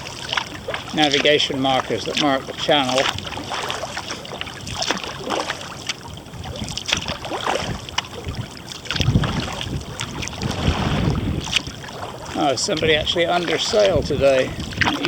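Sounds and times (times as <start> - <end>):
kayak paddle splashing in water: 0.0 - 15.0
wind buffeting microphone: 4.5 - 15.0.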